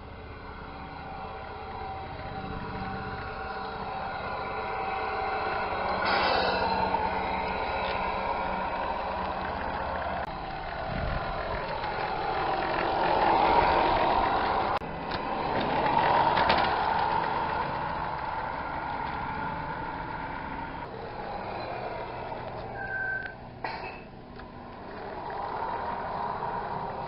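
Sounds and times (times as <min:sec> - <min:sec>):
toy truck running: 0:00.0 - 0:23.6, 0:24.3 - 0:27.0.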